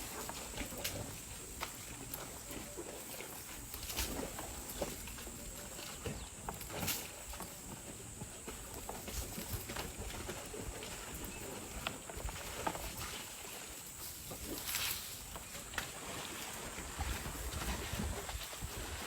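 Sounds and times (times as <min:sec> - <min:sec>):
elephants splashing in mud: 0:08.4 - 0:19.0.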